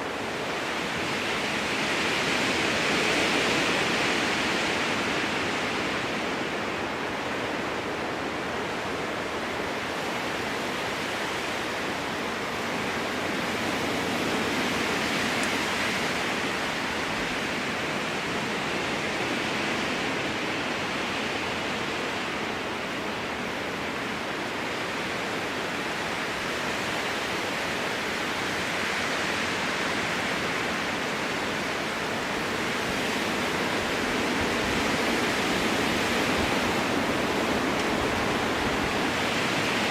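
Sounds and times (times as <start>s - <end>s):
strong wind through trees: 0.0s - 39.9s.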